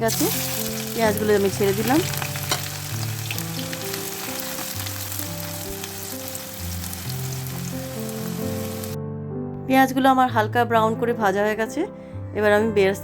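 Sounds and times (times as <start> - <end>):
onions sizzling in hot oil: 0.0 - 9.0.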